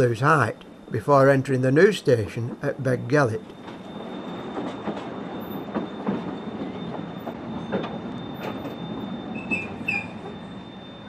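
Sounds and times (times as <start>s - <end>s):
train wheels rumbling: 0.0s - 11.0s
train wheels squealing: 0.0s - 11.0s.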